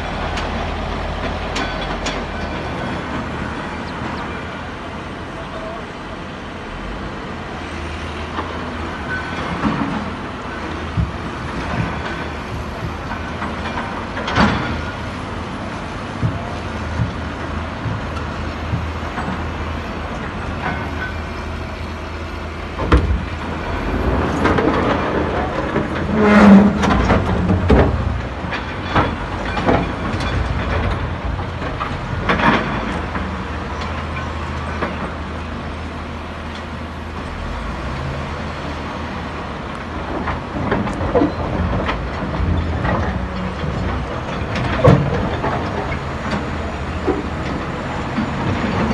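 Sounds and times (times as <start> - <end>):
diesel machinery humming: 0.0 - 48.9
metal and rock clanking: 10.9 - 21.8, 22.7 - 35.2.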